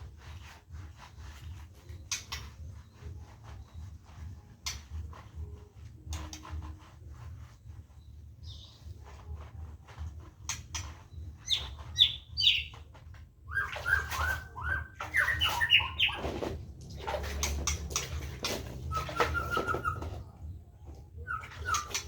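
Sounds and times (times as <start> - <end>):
birds chirping: 8.0 - 9.1, 11.1 - 12.8, 13.5 - 22.0.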